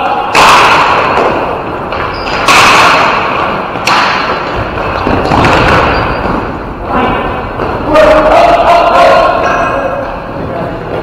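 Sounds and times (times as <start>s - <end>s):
ball and sticks hitting rink boards: 0.0s - 8.3s.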